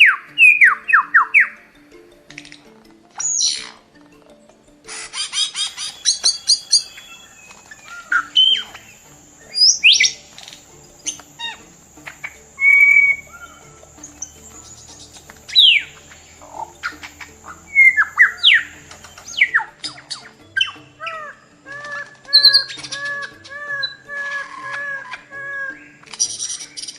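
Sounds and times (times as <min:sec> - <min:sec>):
bird chirps and whistles: 0:00.0 - 0:01.6, 0:04.9 - 0:26.9
soft background music: 0:00.0 - 0:26.9.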